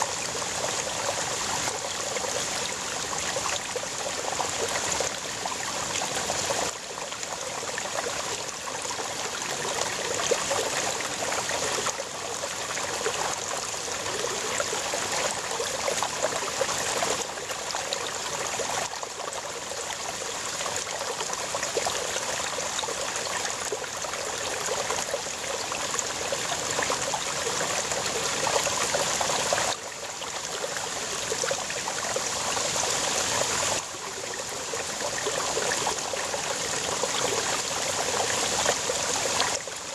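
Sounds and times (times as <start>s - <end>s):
brook babbling over rocks: 0.0s - 39.9s.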